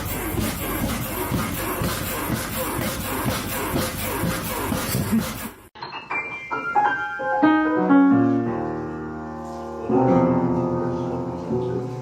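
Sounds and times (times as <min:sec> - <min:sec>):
piano music: 0:05.8 - 0:12.0.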